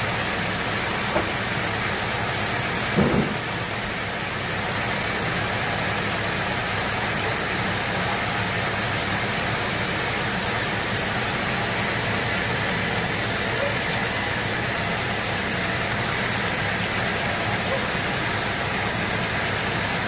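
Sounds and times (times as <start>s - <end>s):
sawmill machinery running: 0.0s - 20.0s
brief knock: 1.1s - 1.4s, 3.0s - 3.5s.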